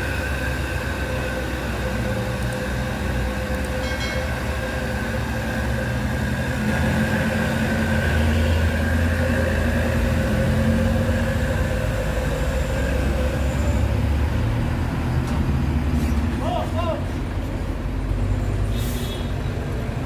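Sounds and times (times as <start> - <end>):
steady whine: 0.0 - 16.9
truck diesel engine running: 0.0 - 20.0.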